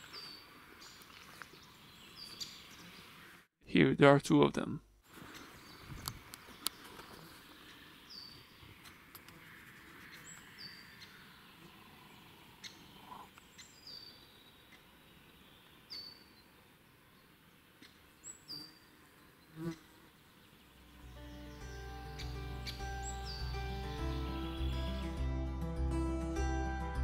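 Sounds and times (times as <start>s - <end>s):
woodpecker squeaking calls: 21.5s - 25.2s.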